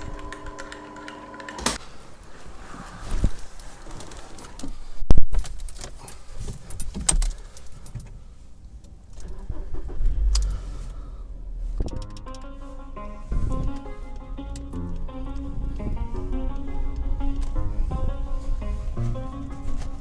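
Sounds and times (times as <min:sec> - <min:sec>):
low rumble: 0:12.6 - 0:20.0.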